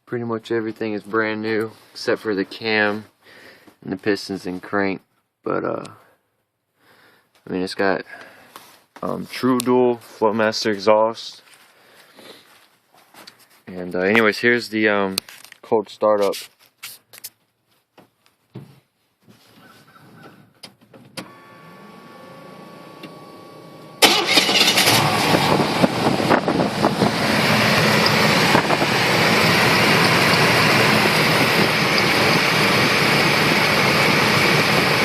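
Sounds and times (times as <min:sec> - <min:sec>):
engine starting and idling: 0:24.0 - 0:35.0.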